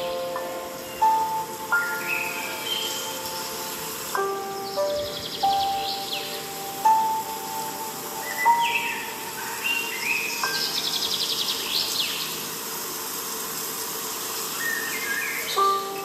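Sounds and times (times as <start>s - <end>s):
chime-like music notes: 0.0s - 11.2s
songbird chirps and trill: 0.0s - 16.0s.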